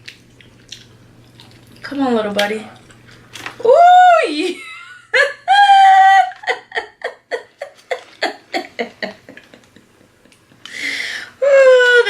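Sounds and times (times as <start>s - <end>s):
breathy exhale: 10.7s - 11.4s.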